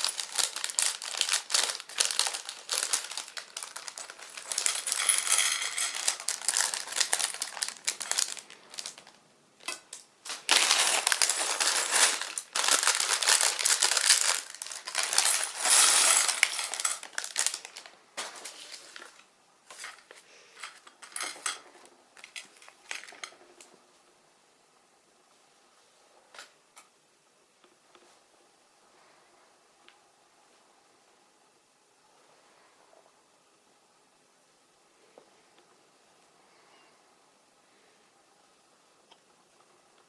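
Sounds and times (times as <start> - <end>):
plastic building blocks clattering: 0.0 - 23.6.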